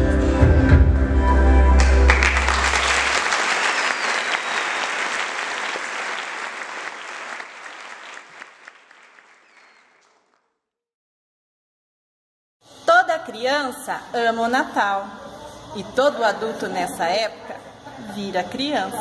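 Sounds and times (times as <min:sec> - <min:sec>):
audience applauding: 0:01.8 - 0:10.4.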